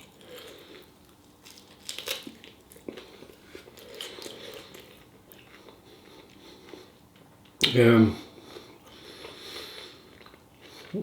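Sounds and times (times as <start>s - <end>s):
person chewing food: 0.0s - 7.6s, 8.3s - 11.0s.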